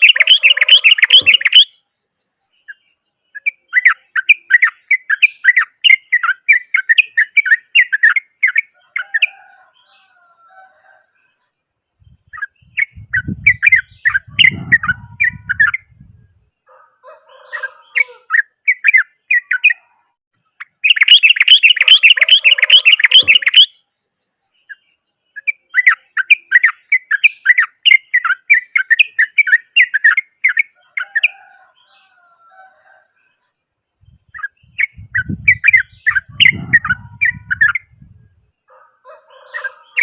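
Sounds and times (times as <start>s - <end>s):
fast bird trill: 0.0s - 1.8s, 3.4s - 9.4s, 12.2s - 16.0s, 20.6s - 23.8s, 25.4s - 31.4s, 34.1s - 38.1s
bird chattering song: 0.0s - 10.2s, 11.2s - 16.7s, 17.3s - 32.3s, 33.2s - 40.0s.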